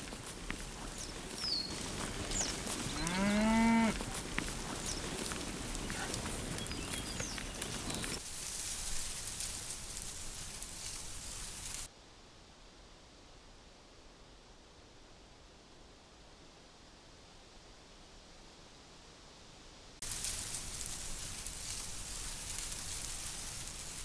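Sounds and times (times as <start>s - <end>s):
cow mooing: 0.4s - 6.7s.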